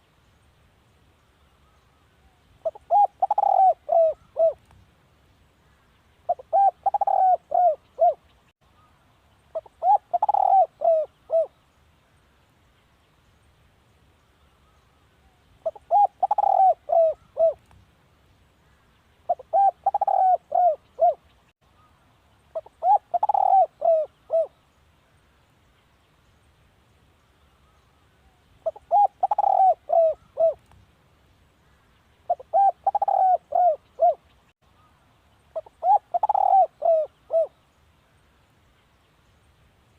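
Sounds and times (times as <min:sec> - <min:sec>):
dove cooing: 0:02.6 - 0:04.6, 0:06.3 - 0:08.2, 0:09.6 - 0:11.6, 0:15.6 - 0:17.6, 0:19.3 - 0:21.2, 0:22.6 - 0:24.6, 0:28.6 - 0:30.6, 0:32.3 - 0:34.2, 0:35.6 - 0:37.6.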